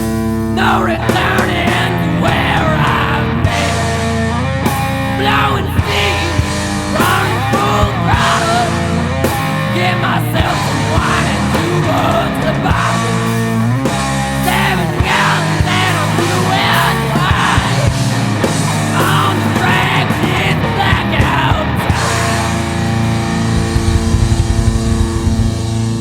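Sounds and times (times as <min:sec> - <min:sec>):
rock jam music: 0:00.0 - 0:26.0
person singing: 0:00.6 - 0:04.2, 0:05.1 - 0:13.6, 0:14.4 - 0:18.2, 0:18.9 - 0:22.7.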